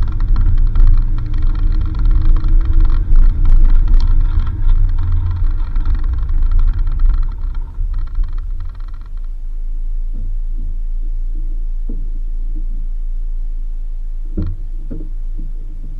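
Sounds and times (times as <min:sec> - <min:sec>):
knocks: 0:00.0 - 0:09.4, 0:14.4 - 0:15.9
vehicle engine and road rumble: 0:00.0 - 0:15.9.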